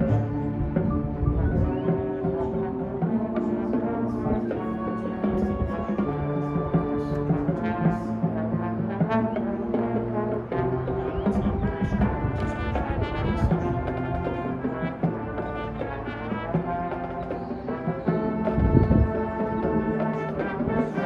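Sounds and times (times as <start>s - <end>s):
brass sustaining chords: 0.0s - 21.0s.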